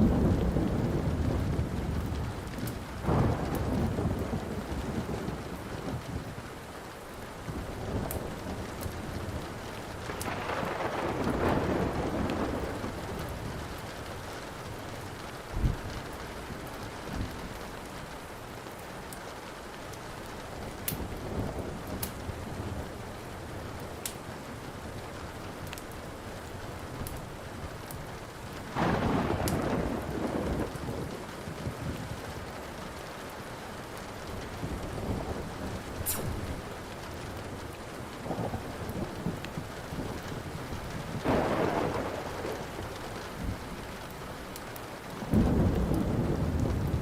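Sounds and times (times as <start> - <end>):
thunder rolling: 0.0 - 6.3, 7.6 - 14.1, 28.7 - 32.2, 38.2 - 43.8, 45.2 - 47.0
steady rain: 0.0 - 47.0
wood fire crackling: 0.0 - 47.0.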